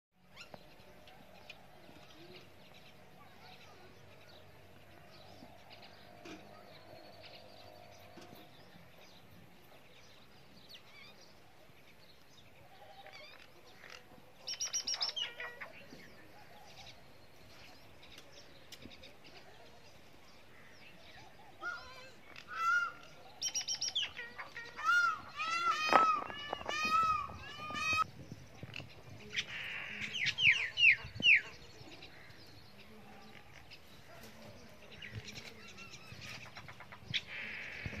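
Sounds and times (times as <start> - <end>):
sharp high bird calls: 21.6 - 28.1.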